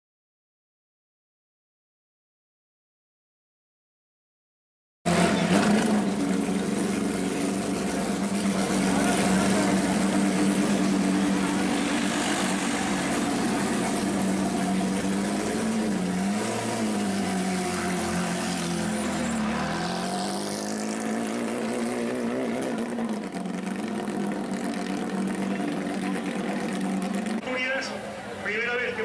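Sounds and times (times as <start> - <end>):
car engine running at high revs: 5.1 - 27.8.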